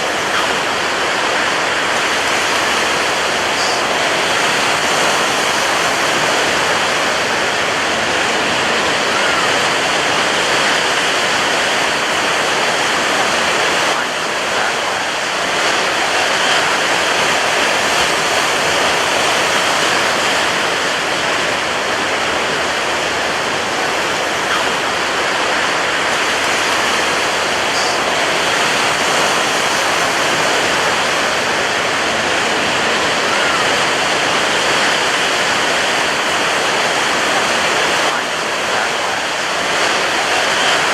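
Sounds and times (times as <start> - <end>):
ocean surf breaking: 0.0 - 40.9.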